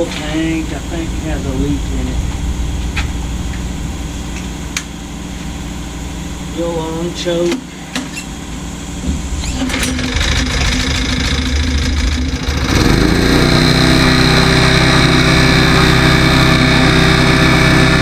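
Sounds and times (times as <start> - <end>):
small engine starting and running: 9.4 - 18.0.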